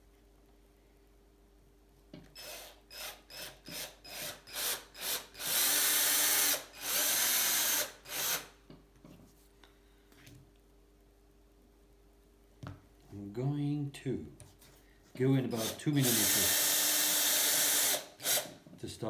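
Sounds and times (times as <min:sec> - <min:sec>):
electric drill bursts: 0:02.4 - 0:08.5, 0:15.4 - 0:18.6.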